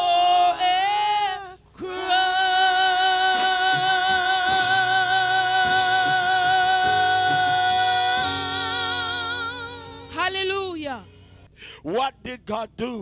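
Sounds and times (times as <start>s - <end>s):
person singing a long note: 1.8s - 10.2s
instrumental accompaniment: 3.7s - 11.5s.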